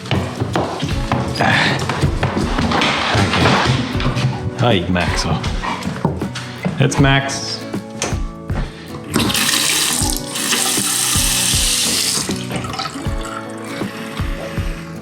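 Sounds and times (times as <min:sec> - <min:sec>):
music with steady beat: 0:00.0 - 0:15.0
faucet water running: 0:08.7 - 0:14.8.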